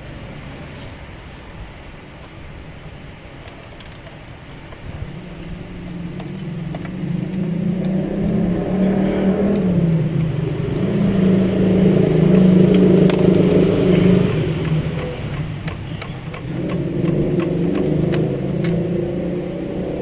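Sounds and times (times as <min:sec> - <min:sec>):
vehicle engine revving: 0:05.0 - 0:20.0.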